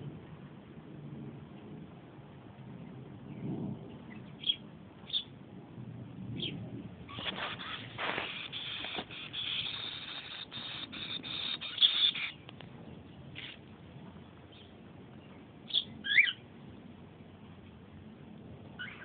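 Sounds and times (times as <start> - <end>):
scratchy rustling: 7.1 - 10.3
baby bird cheeps: 7.1 - 12.3.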